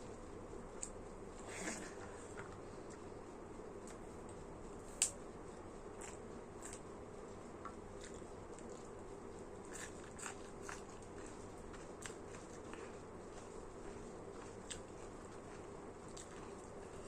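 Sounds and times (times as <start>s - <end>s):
steady low hum: 0.0s - 17.0s
chewing clicks and smacks: 15.5s - 16.7s.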